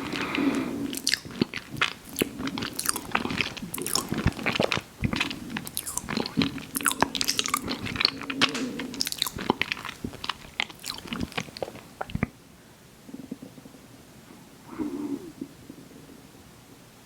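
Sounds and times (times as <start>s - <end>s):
chewing with wet mouth clicks: 0.0s - 12.3s
soft crunching: 0.0s - 12.3s.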